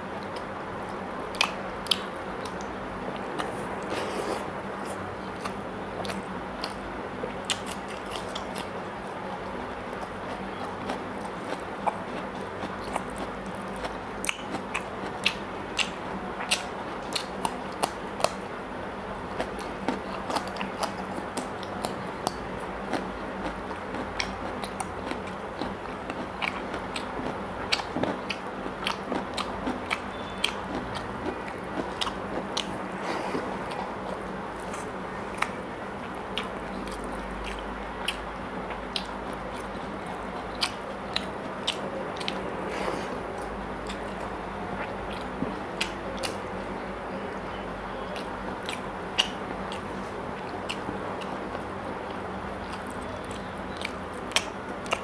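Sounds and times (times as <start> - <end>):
chewing and lip smacking: 0.2 - 6.8, 7.4 - 18.5, 19.3 - 42.5, 43.3 - 46.4, 48.1 - 55.0.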